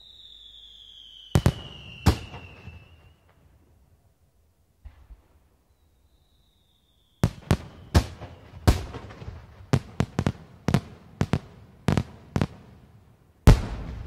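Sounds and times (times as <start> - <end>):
firework whistle: 0.0 - 3.6, 5.7 - 9.1
fireworks bangs with echoes: 1.3 - 3.4, 7.2 - 12.7, 13.4 - 14.0.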